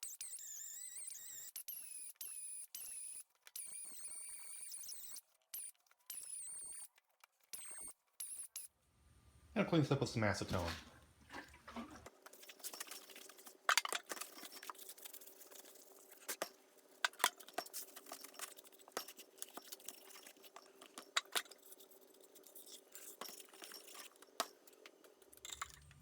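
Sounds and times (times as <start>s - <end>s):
faint steady hum: 8.8s - 13.7s.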